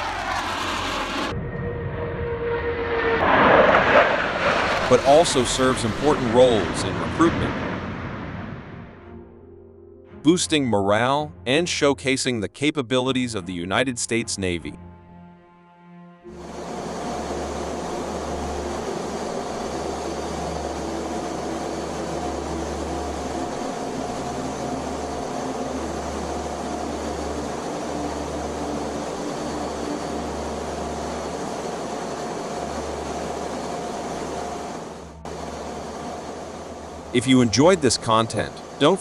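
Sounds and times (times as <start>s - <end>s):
jet aircraft rushing hiss: 0.0s - 9.0s, 16.3s - 39.0s
low hum: 0.0s - 10.0s, 16.3s - 39.0s
faint steady tones: 16.3s - 39.0s.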